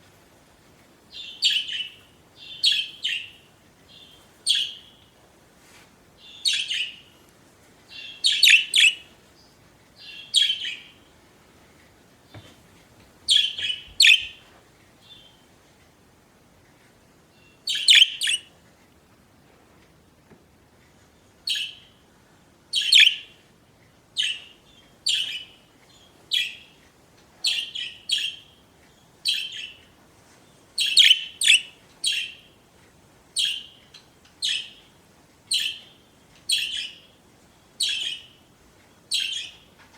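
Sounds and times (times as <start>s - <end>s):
budgerigars chirping: 8.0s - 9.0s, 10.0s - 10.9s, 13.3s - 14.4s, 17.7s - 18.5s, 22.8s - 23.3s, 30.8s - 32.4s, 34.4s - 34.8s, 35.5s - 35.9s, 37.8s - 38.3s.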